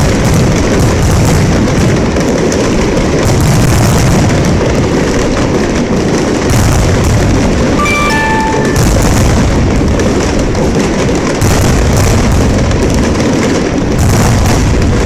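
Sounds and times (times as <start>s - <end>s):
fireworks shells bursting: 6.9s - 12.6s.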